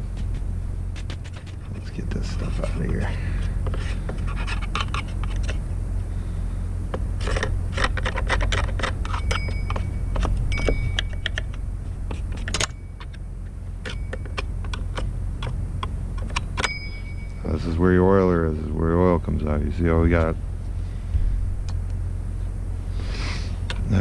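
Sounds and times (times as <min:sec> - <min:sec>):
steady low hum: 0:00.0 - 0:24.0
metal parts clicking and scraping: 0:03.6 - 0:05.6, 0:07.2 - 0:13.2.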